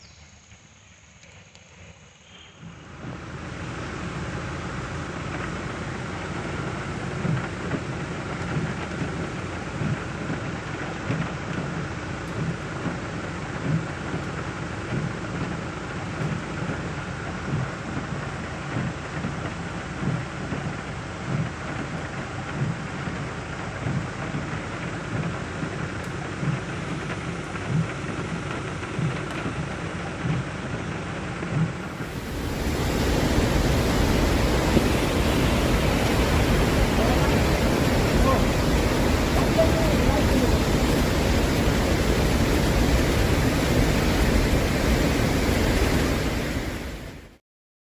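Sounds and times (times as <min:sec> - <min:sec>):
waterfall roaring: 0:02.7 - 0:47.4
waterfall rushing: 0:31.8 - 0:47.4.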